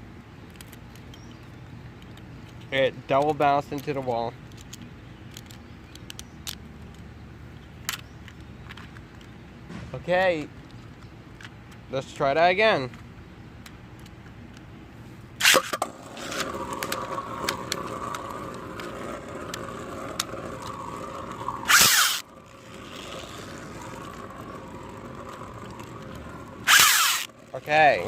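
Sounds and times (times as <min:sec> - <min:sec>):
spinning top launcher rip: 0:15.4 - 0:16.5, 0:20.8 - 0:24.4, 0:26.4 - 0:27.3
spinning tops whirring: 0:15.4 - 0:28.0
spinning tops clicking together: 0:19.5 - 0:27.3
loud short burst: 0:21.7 - 0:22.2.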